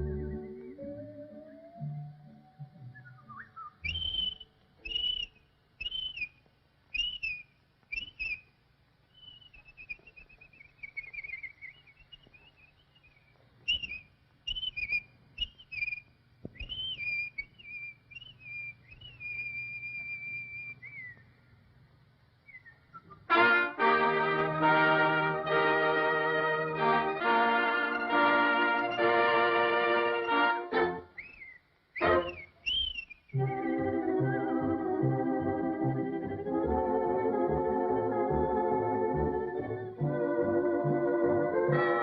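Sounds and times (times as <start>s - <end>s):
whistled cartoon bird calls: 0.0s - 8.5s, 9.1s - 21.2s, 29.9s - 34.8s.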